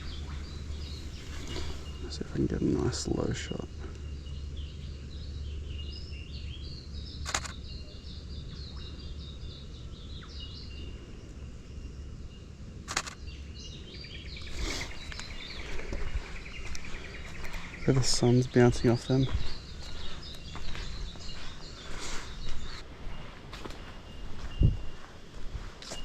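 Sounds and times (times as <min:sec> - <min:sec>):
low steady rumble: 0:00.0 - 0:14.5
small birds chirping: 0:00.0 - 0:26.0
sharp clicks: 0:07.2 - 0:07.6, 0:12.8 - 0:13.2.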